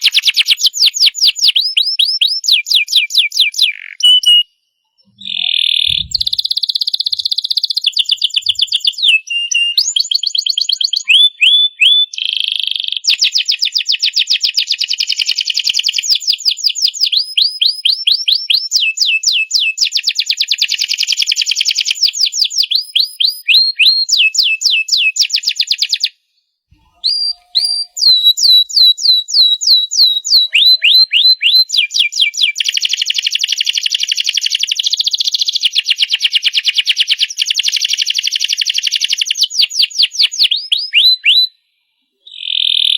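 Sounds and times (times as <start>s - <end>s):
canary singing trills: 0.0s - 12.3s, 26.8s - 32.8s.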